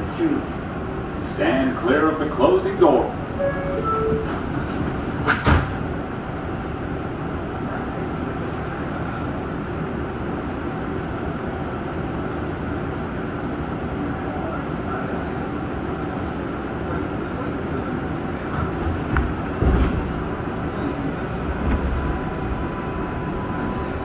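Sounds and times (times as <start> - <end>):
train running noise: 0.0 - 24.0
train doors sliding shut: 2.9 - 6.1, 18.5 - 24.0.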